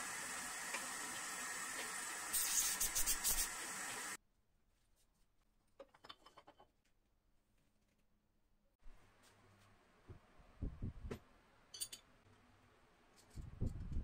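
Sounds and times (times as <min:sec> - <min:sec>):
steady hiss: 0:00.0 - 0:04.2.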